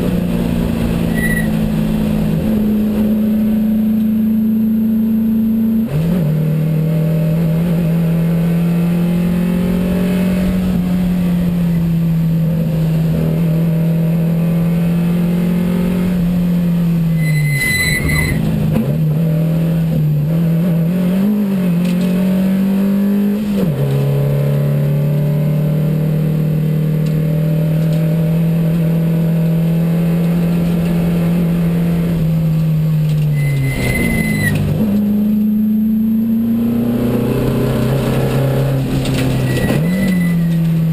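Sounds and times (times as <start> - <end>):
race car engine: 0.0 - 40.9
short high electronic beep: 1.1 - 1.6, 17.1 - 18.4, 33.3 - 34.6.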